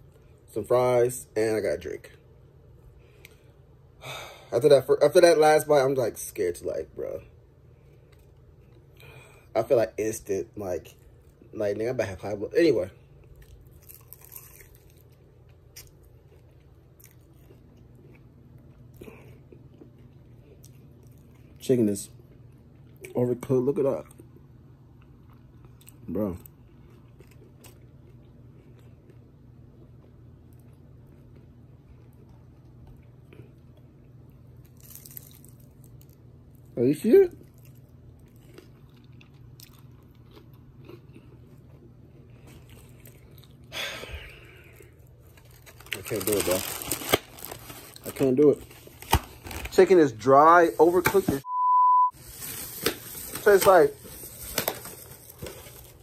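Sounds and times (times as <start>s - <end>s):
man chewing food: 7.7s - 9.2s, 13.0s - 21.6s, 24.0s - 36.7s, 37.4s - 45.9s.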